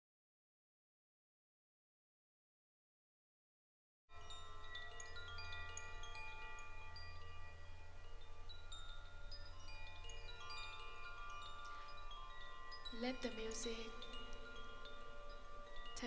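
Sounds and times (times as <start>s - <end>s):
wind chimes ringing: 4.1s - 16.0s
low steady hum: 4.2s - 16.0s.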